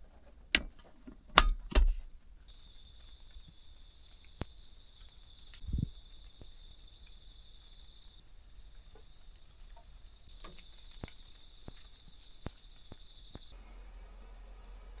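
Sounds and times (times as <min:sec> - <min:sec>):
high insect trill: 0:02.5 - 0:13.6.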